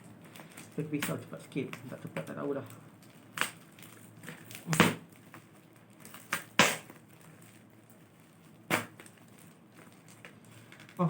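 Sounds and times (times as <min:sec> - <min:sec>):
knife slicing packing: 0:08.3 - 0:09.4.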